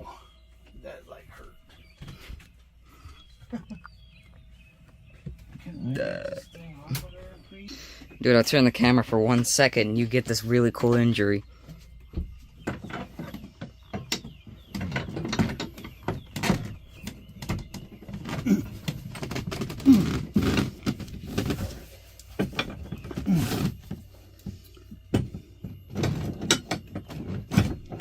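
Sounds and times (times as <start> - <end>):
short creaks: 18.2 - 23.9.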